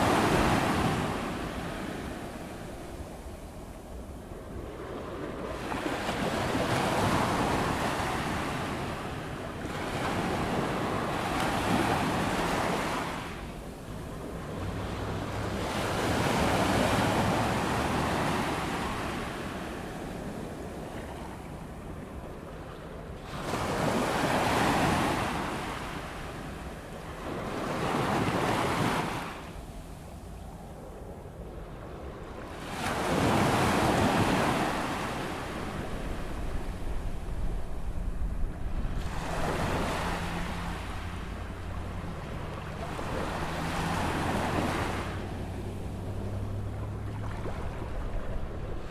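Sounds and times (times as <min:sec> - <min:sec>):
ocean waves breaking: 0:00.0 - 0:48.9
wind on microphone: 0:27.4 - 0:48.9.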